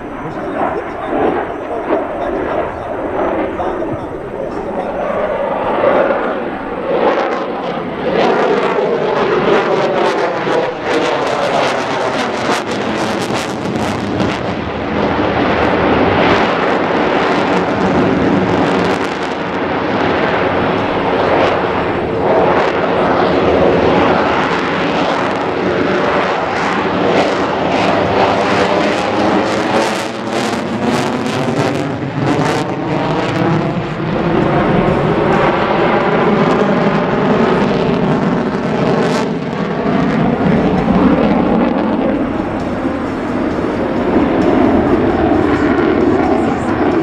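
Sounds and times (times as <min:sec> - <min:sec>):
jet engines roaring: 0:00.0 - 0:47.0.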